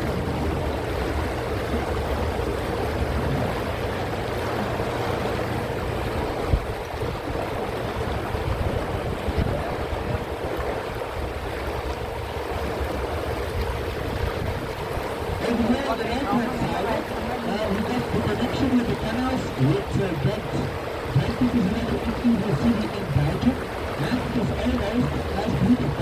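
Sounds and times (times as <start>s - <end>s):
boat motor hum: 0.0s - 26.0s
water wash: 0.0s - 26.0s
wind rumble on microphone: 0.0s - 26.0s.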